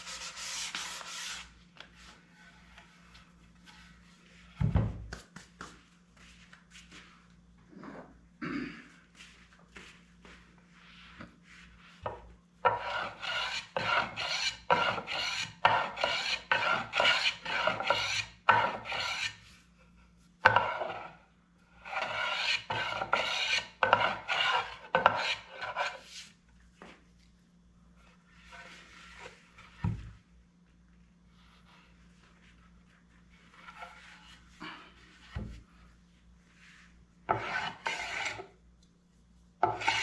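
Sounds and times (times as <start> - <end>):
rasp scraping wood: 12.6 - 19.4, 21.8 - 26.2, 37.3 - 38.4, 39.6 - 40.0.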